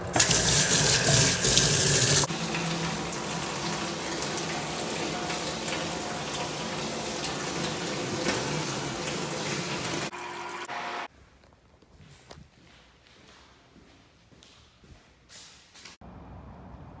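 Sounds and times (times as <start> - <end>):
water running from a tap: 0.0 - 11.1.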